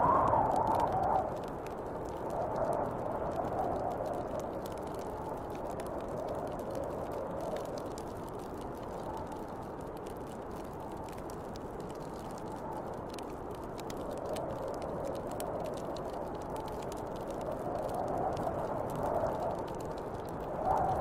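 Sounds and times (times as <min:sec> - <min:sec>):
snowstorm wind blowing: 0:00.0 - 0:09.2, 0:12.6 - 0:21.0
wood fire crackling: 0:00.0 - 0:21.0.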